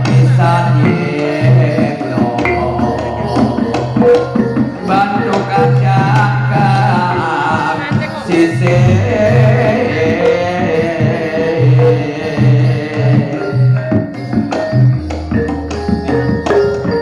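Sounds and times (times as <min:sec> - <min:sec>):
hand drum strokes: 0:00.0 - 0:13.3
gamelan music: 0:00.0 - 0:17.0.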